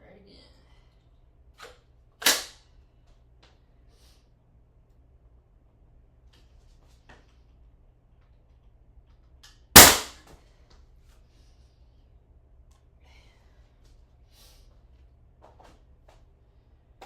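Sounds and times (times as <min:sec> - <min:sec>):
nail gun bang: 0:02.2 - 0:02.6, 0:09.8 - 0:10.2.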